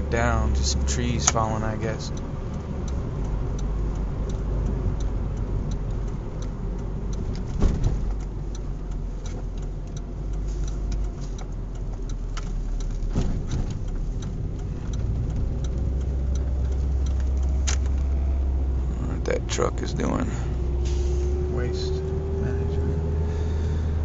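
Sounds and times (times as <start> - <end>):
car engine and road noise: 0.0 - 24.0
light regular ticking: 0.0 - 24.0
thump: 7.6 - 8.0.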